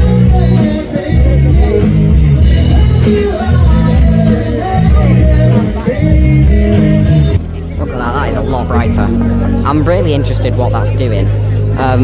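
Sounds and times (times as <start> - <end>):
person singing: 0.0 - 7.8
loud music with bass and guitar: 0.0 - 12.0.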